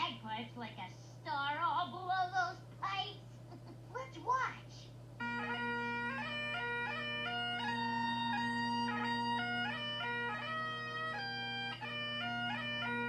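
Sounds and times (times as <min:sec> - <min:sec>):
bagpipes playing: 0:05.2 - 0:13.0.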